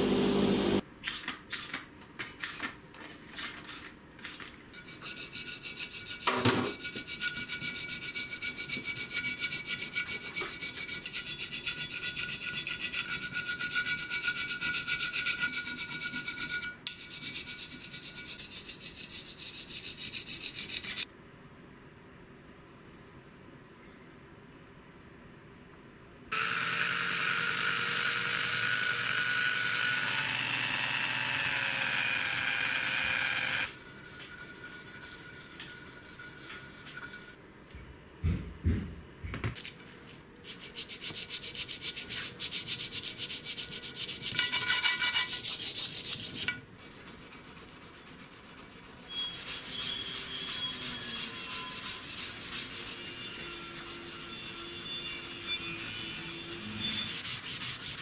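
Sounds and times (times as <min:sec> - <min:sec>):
scraping strokes on metal: 0:04.7 - 0:21.1, 0:31.8 - 0:37.4, 0:40.4 - 0:58.0.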